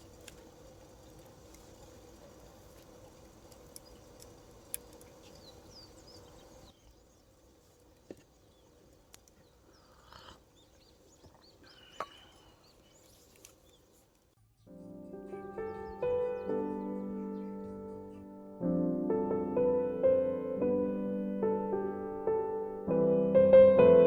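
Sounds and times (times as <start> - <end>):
small birds chirping: 0.0 - 18.5.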